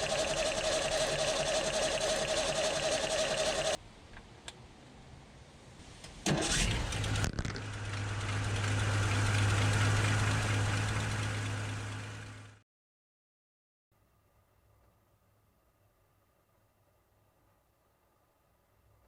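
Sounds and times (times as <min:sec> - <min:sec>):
starter motor whirring: 0:00.0 - 0:03.8, 0:06.3 - 0:11.2
truck engine running: 0:00.0 - 0:03.8, 0:06.5 - 0:12.6.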